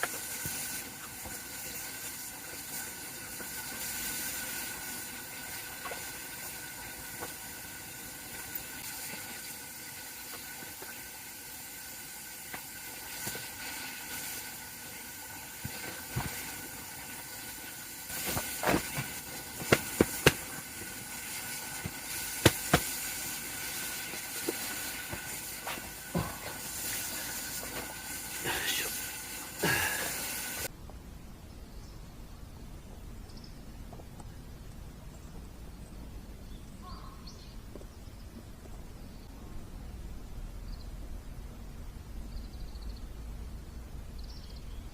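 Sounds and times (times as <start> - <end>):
campfire hissing and crackling: 0.0 - 30.8
sharp fire pops: 18.1 - 21.0, 21.7 - 27.0.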